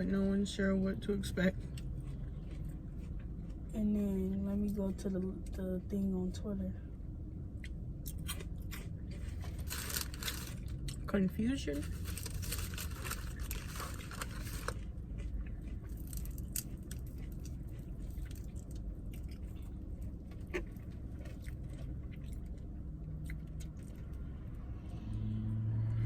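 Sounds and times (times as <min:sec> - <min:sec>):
low hum: 0:00.0 - 0:26.0
low rumble: 0:00.0 - 0:26.0
person chewing: 0:01.5 - 0:03.8, 0:07.6 - 0:11.1, 0:11.8 - 0:24.3.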